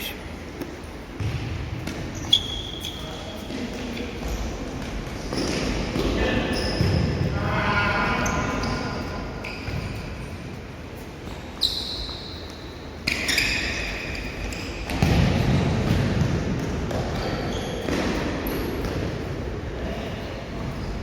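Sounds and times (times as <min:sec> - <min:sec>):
sneakers squeaking: 0:00.0 - 0:21.0
ball bouncing and kicked: 0:01.1 - 0:02.4, 0:14.8 - 0:19.2.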